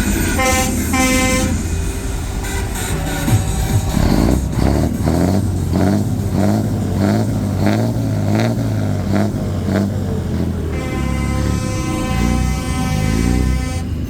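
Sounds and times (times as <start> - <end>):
sustained many-toned sound: 0.0 - 8.8
rhythmic music: 0.0 - 13.6
heavy truck engine rumbling: 0.0 - 14.0.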